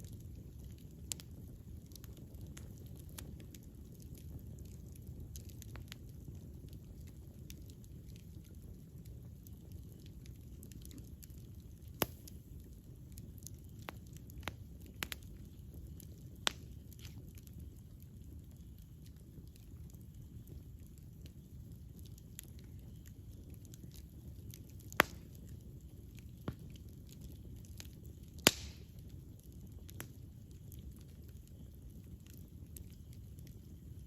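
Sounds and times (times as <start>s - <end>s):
campfire crackling and popping: 0.0s - 34.0s
rush of flame: 11.9s - 12.6s, 28.4s - 29.1s.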